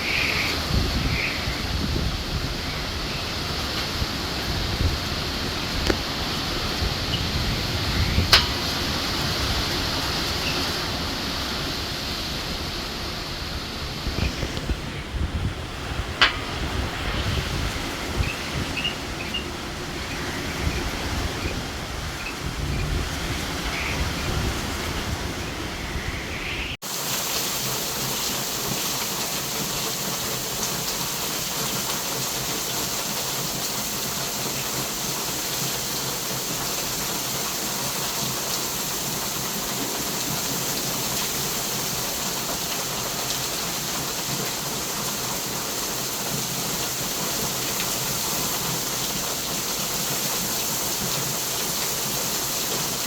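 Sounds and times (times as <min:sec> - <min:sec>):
wind gusts on microphone: 0:00.0 - 0:26.8
heavy rain hiss: 0:00.0 - 0:53.0.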